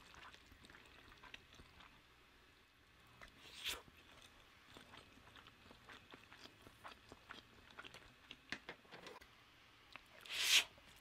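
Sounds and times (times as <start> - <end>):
chewing with wet mouth clicks: 0.0 - 2.0, 3.2 - 8.5.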